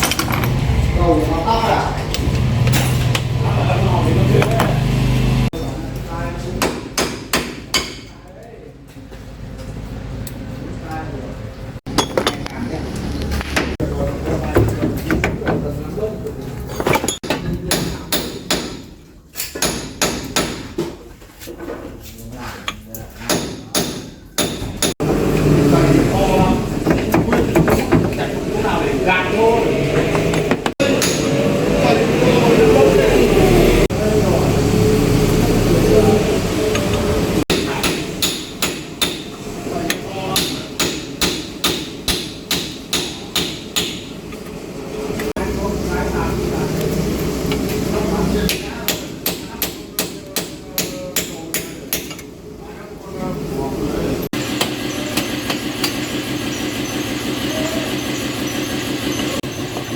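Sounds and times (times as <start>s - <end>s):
hammer striking metal: 6.6s - 8.1s, 17.1s - 20.8s, 23.2s - 25.0s, 30.6s - 31.6s, 37.5s - 44.1s.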